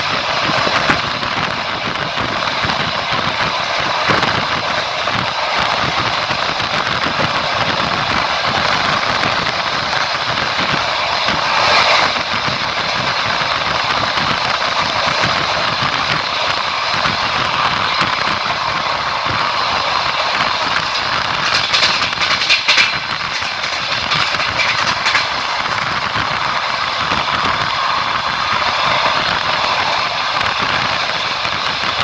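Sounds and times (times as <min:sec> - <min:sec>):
train wheels rolling on rails: 0:00.0 - 0:32.0.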